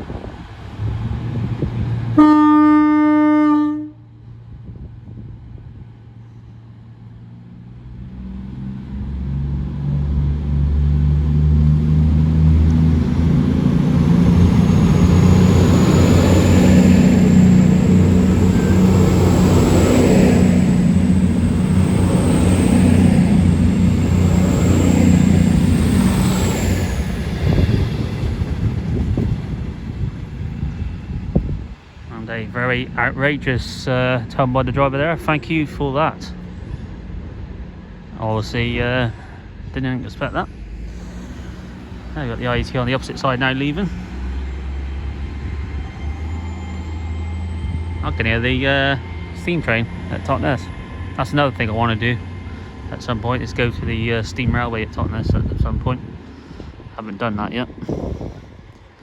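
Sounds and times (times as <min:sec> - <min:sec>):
train horn: 0:02.1 - 0:04.1, 0:17.3 - 0:19.1
diesel engine pulling away: 0:04.5 - 0:59.0.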